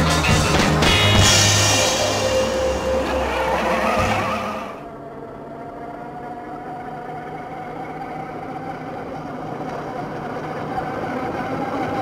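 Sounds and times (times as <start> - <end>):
gear and wheel noise: 3.2 - 12.0.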